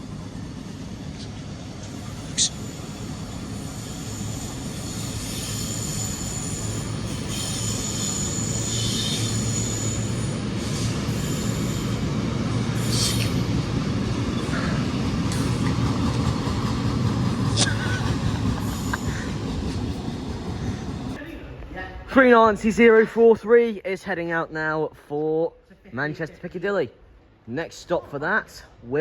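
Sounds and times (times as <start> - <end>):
train rumbling on tracks: 0.0 - 21.2
high-pitched wheel squeal: 2.4 - 12.2.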